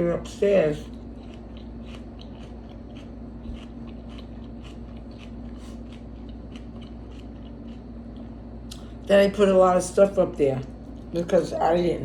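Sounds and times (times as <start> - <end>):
low hum: 0.0 - 12.0
person chewing food: 0.8 - 9.0.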